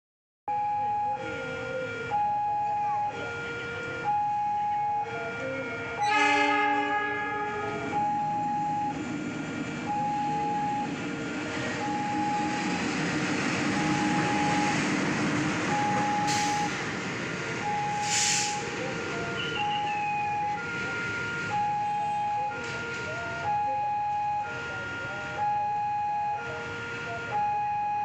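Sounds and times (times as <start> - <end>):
railway crossing warning bell: 1.1 - 16.8
train rolling by: 5.3 - 21.6
train horn chord: 6.0 - 8.0
short hiss: 18.0 - 18.6.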